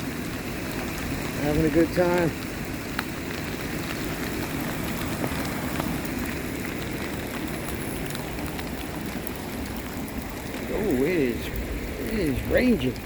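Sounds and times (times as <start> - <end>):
rain falling: 0.0 - 13.0
rushing floodwater: 0.0 - 13.0.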